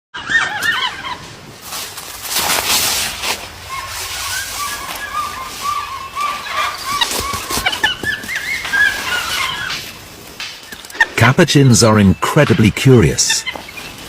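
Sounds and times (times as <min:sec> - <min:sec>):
monkeys chirping: 0:00.2 - 0:01.2, 0:03.5 - 0:14.0
rustling and scraping: 0:01.2 - 0:11.0.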